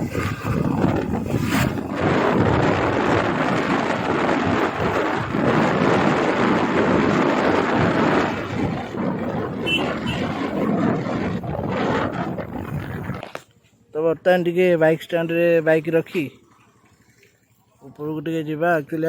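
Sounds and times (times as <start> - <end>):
wind buffeting microphone: 0.0 - 13.5.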